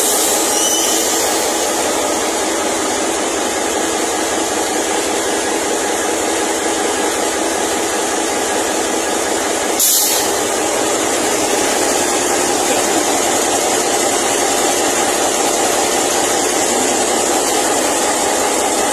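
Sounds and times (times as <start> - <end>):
air hiss: 0.0 - 2.0, 9.8 - 10.5
diesel locomotive idling: 0.0 - 18.9.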